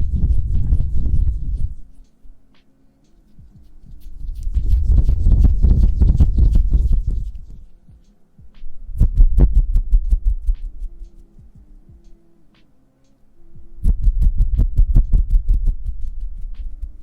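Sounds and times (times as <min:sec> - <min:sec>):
hands rubbing together: 0:00.0 - 0:08.7
faint hum: 0:00.0 - 0:17.0.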